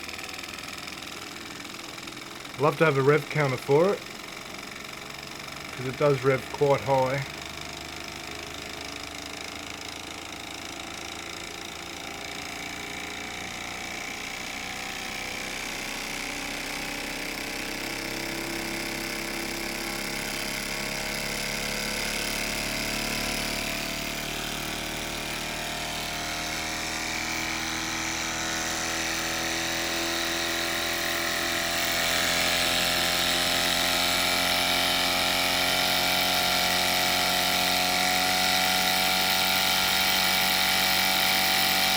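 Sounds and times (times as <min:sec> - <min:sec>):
miniature steam engine whirring: 0:00.0 - 0:12.5, 0:29.2 - 0:41.9.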